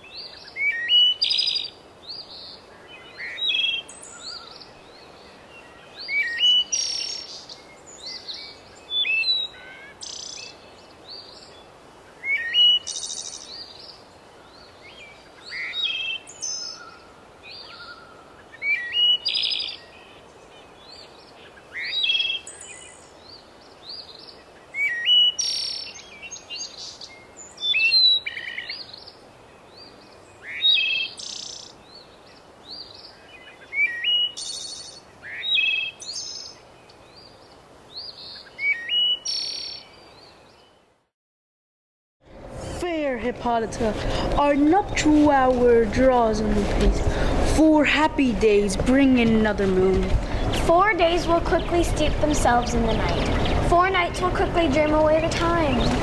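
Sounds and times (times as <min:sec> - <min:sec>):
birds chirping and whistling: 0:00.0 - 0:11.6, 0:12.2 - 0:32.1, 0:32.7 - 0:40.8, 0:44.0 - 0:56.0
steady background hiss: 0:00.0 - 0:40.8.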